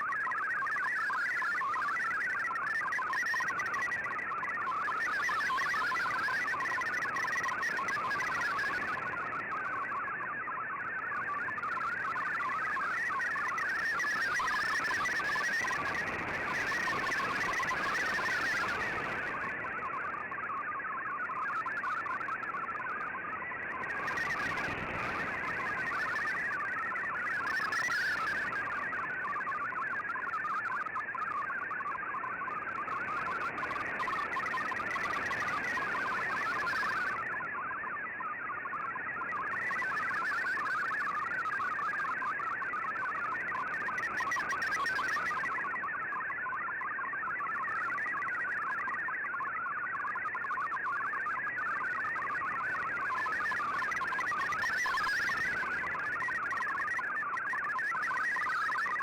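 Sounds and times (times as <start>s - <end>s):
radio background hiss: 0.0s - 37.5s, 38.6s - 46.3s
warbling digital data tones: 0.0s - 59.0s.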